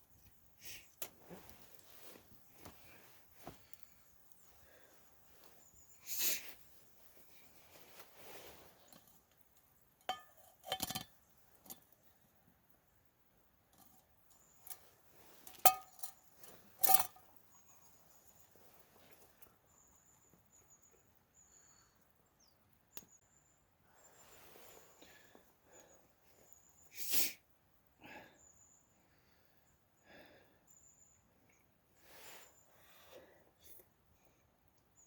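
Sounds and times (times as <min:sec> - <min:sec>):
metal cookware clinking: 0:10.1 - 0:11.1, 0:15.5 - 0:16.2, 0:16.8 - 0:17.2.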